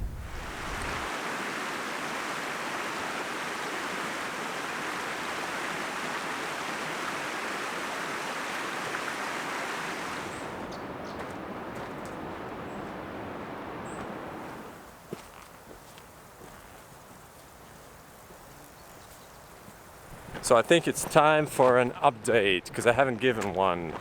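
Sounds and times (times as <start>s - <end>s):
mountain stream rushing: 0.0s - 18.8s.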